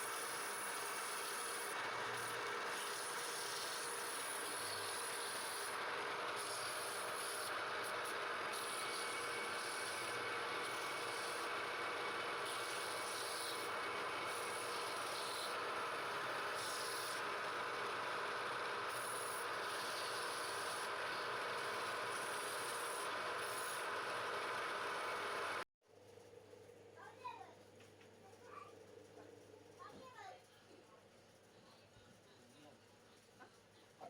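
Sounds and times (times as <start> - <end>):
wood lathe running: 0.0 - 25.6
tool rubbing turning wood: 12.3 - 17.4, 18.3 - 25.6.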